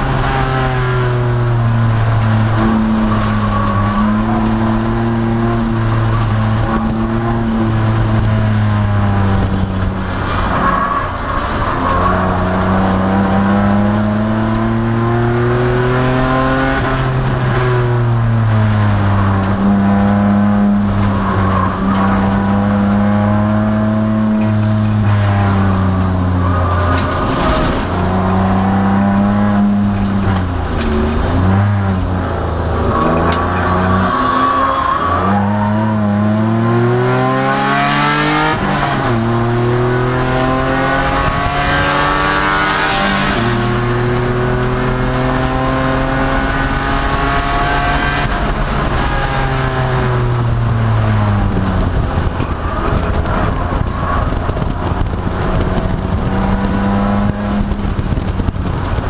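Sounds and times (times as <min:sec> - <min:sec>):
race car engine accelerating: 0:00.0 - 0:59.0
tyre squealing: 0:01.7 - 0:08.1, 0:24.1 - 0:36.7.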